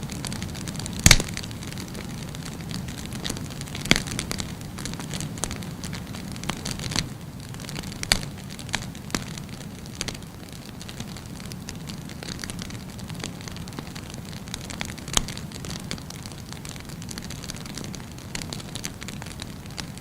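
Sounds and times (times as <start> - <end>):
wood fire crackling: 0.0 - 20.0
sharp pops of fire: 0.1 - 12.6.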